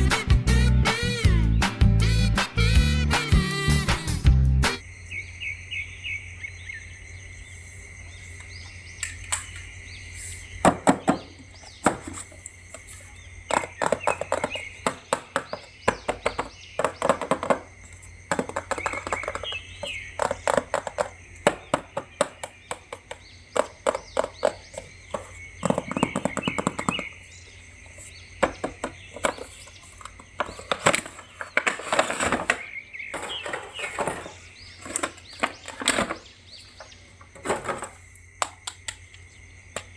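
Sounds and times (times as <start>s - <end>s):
plastic figures clicking and tapping: 12.7s - 27.2s.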